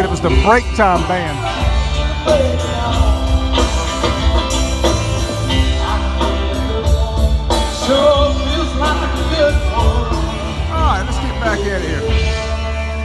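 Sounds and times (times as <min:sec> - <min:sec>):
live rock and roll band: 0:00.0 - 0:13.0.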